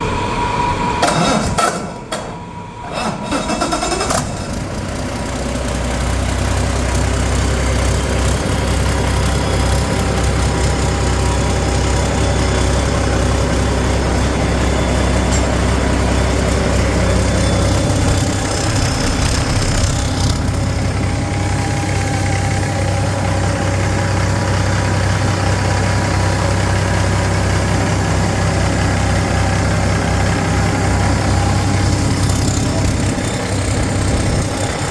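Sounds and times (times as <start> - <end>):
diesel engine starting and idling: 0.0 - 34.9.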